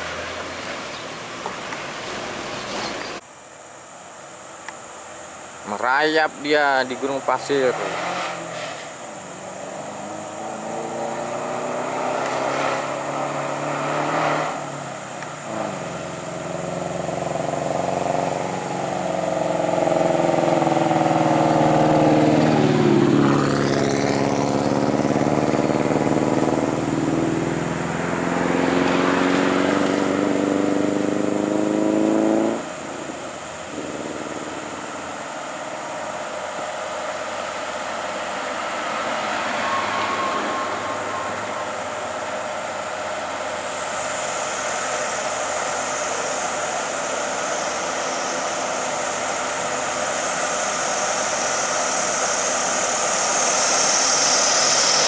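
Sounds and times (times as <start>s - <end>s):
diesel truck engine straining: 5.8s - 55.0s.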